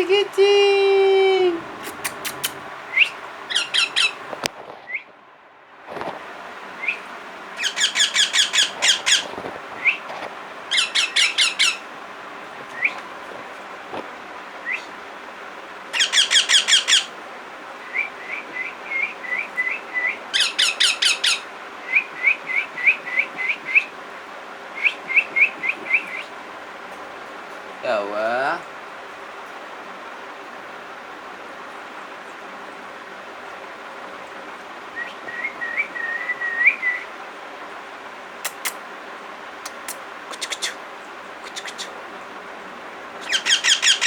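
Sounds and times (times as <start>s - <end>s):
parrot chirping: 1.5s - 4.3s, 6.8s - 10.0s, 10.7s - 11.9s, 15.9s - 17.1s, 19.0s - 23.0s, 38.4s - 38.8s, 39.6s - 40.8s, 41.4s - 42.0s, 43.2s - 44.0s
parrot squawking: 1.6s - 4.2s, 7.6s - 9.3s, 10.7s - 11.8s, 15.9s - 17.1s, 20.3s - 21.5s, 39.7s - 40.8s, 41.4s - 42.0s, 43.2s - 44.0s.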